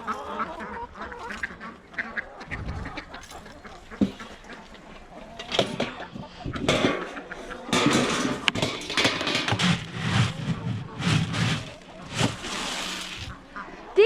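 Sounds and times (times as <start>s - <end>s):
ducks quacking: 0.0s - 14.0s.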